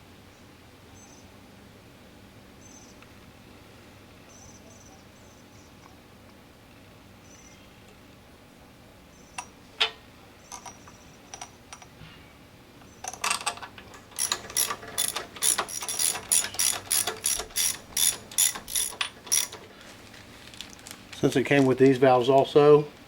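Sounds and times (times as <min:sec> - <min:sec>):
ratchet wrench clicking: 0:13.0 - 0:19.6.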